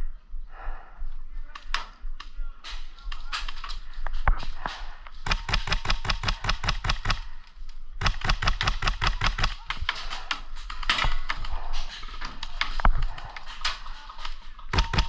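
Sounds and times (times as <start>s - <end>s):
airsoft guns firing in bursts: 5.2s - 7.4s, 8.0s - 10.2s, 14.7s - 15.0s.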